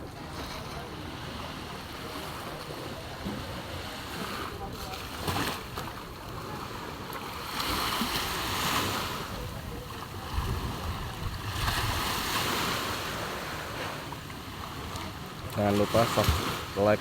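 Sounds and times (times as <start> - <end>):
sea waves breaking on beach: 0.0 - 17.0
wind on microphone: 8.0 - 13.4.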